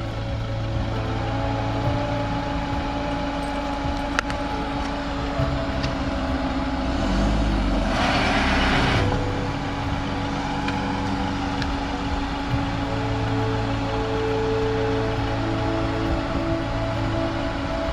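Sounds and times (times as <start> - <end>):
rushing noise: 0.0 - 17.9
van engine running: 0.0 - 17.9.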